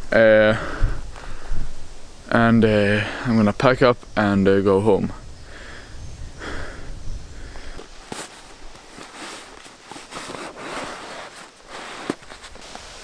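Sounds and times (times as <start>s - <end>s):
footsteps on forest floor: 7.5s - 13.0s.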